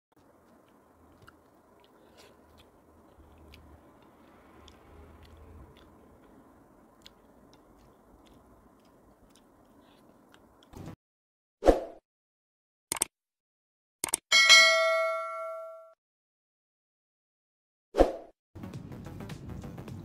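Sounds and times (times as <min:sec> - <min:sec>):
person chewing food: 0:00.1 - 0:10.8
mouth and finger clicks: 0:00.2 - 0:10.8.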